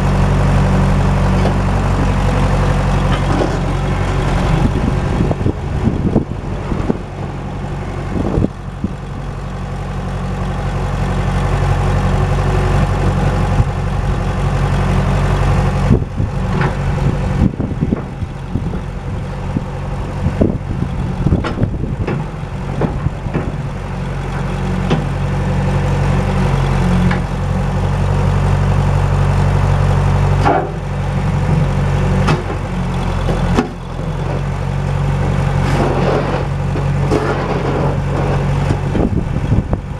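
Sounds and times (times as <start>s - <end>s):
backhoe engine running: 0.0s - 39.9s
machine clunks and knocks: 21.3s - 23.6s, 32.2s - 34.5s, 35.6s - 39.1s.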